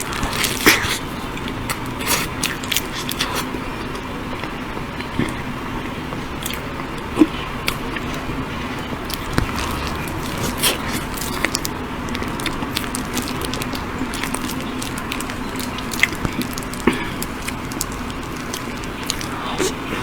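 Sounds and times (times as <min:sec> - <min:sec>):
chewing and wet mouth sounds: 0:00.0 - 0:20.0
mouth clicks and smacks: 0:09.1 - 0:19.9.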